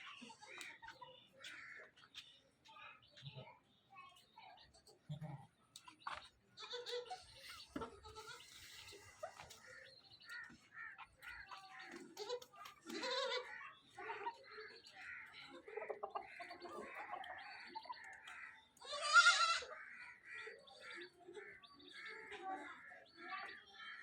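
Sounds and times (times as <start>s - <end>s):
small birds chirping: 0.0s - 24.0s
goats bleating: 12.1s - 13.6s, 18.8s - 19.7s.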